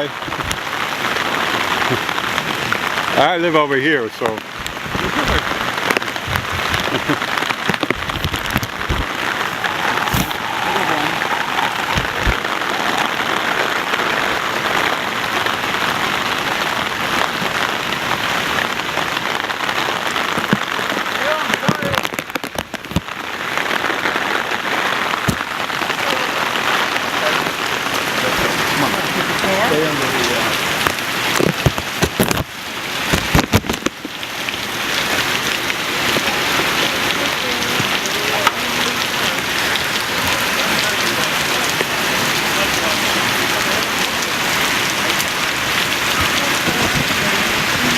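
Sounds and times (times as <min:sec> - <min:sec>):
heavy rain on pavement: 0:00.0 - 0:47.9.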